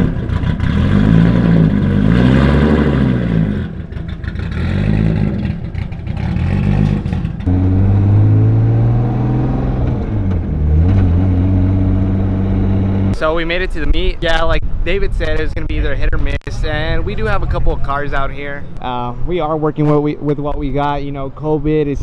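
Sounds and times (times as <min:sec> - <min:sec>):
turbocharged car engine revving: 0:00.0 - 0:13.3.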